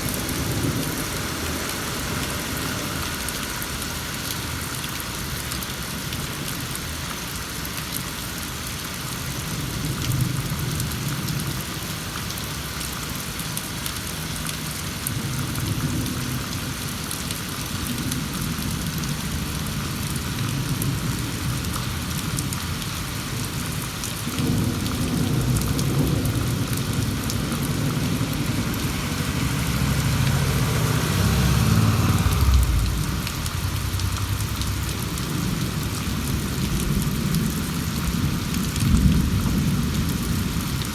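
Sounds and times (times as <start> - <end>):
steady rain: 0.0 - 40.9
rolling thunder: 24.3 - 40.8.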